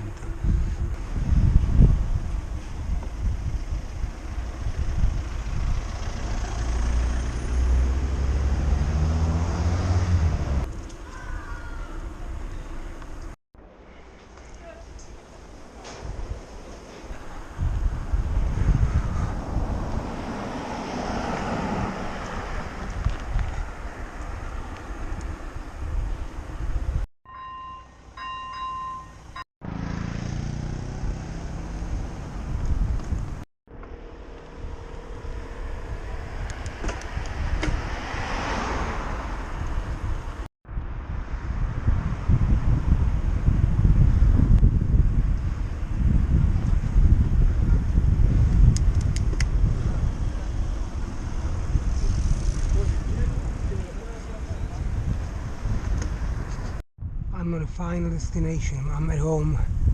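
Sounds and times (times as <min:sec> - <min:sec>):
wind buffeting microphone: 0:00.0 - 0:06.4, 0:15.6 - 0:27.1, 0:30.4 - 0:33.4, 0:34.6 - 0:59.9
large vehicle engine humming: 0:00.0 - 0:13.4, 0:29.6 - 0:38.2.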